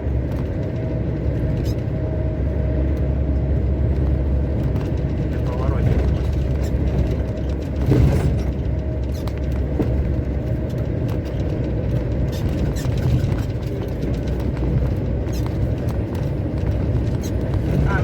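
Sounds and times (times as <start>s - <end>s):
truck engine rumble: 0.0s - 18.0s
faint clicks and rattles: 3.9s - 18.0s.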